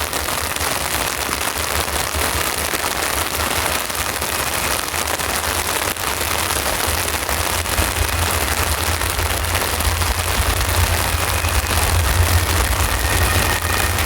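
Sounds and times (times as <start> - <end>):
heavy rain pattering: 0.0 - 14.0
low rumble: 6.3 - 14.0.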